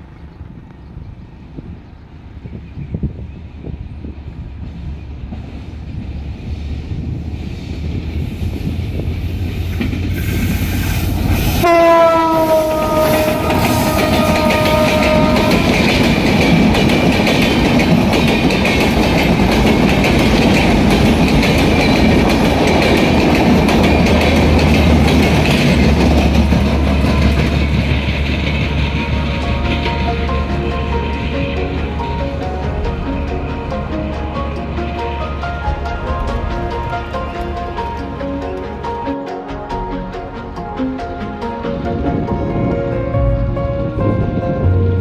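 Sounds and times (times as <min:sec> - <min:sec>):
train rumble: 0:00.0 - 0:45.0
wheels clattering on rails: 0:07.9 - 0:43.2
locomotive horn blast: 0:10.2 - 0:16.2.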